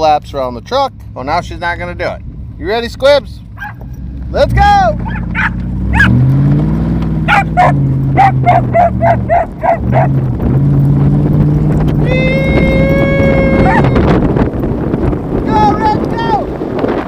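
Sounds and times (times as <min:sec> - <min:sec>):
truck engine accelerating: 0:00.7 - 0:17.0
dog barking: 0:03.6 - 0:03.9, 0:05.0 - 0:06.2, 0:07.3 - 0:10.2, 0:13.6 - 0:14.0.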